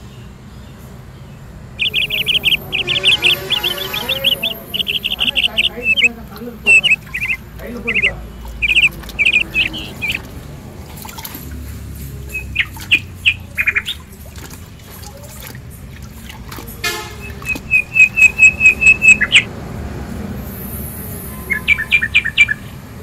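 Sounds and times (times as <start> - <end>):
small bird chirping: 0.0 - 10.3, 12.1 - 15.5, 17.2 - 19.5, 21.0 - 22.8
water sloshing in tub: 1.8 - 20.4.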